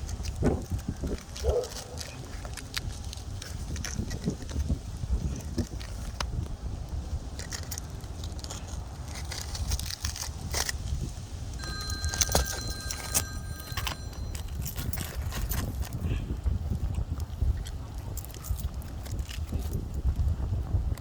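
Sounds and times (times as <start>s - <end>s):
roofing tools scraping shingles: 7.2s - 15.8s
steady high tones: 11.6s - 14.7s.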